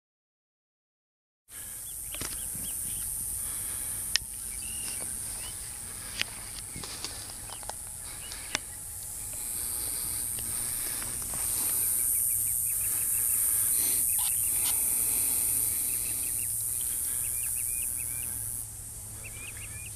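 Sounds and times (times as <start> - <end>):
steady high hiss: 1.5 - 19.9
bird chirps: 1.8 - 3.2, 4.3 - 10.2, 10.8 - 18.6, 19.2 - 19.9.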